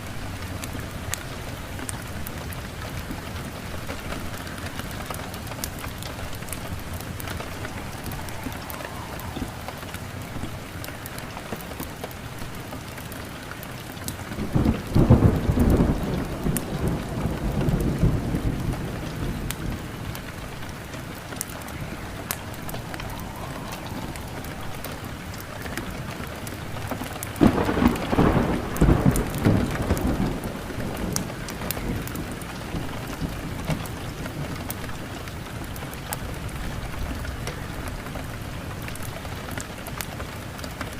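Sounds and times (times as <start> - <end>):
steady rain: 0.0 - 40.9
thunder rumbling: 0.0 - 40.9.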